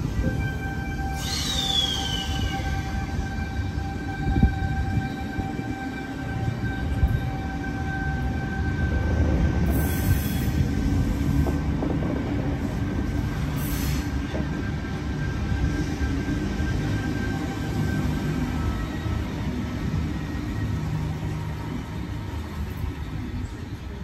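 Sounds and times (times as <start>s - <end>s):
train wheels rumbling on rails: 0.0s - 24.0s
brief high hisses: 1.2s - 2.4s, 13.6s - 14.2s.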